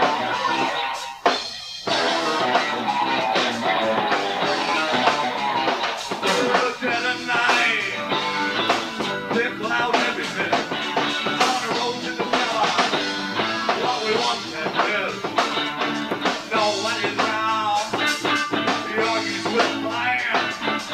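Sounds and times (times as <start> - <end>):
bass guitar: 0.0 - 20.9
drums beat: 0.0 - 20.9
guitar: 0.0 - 20.9.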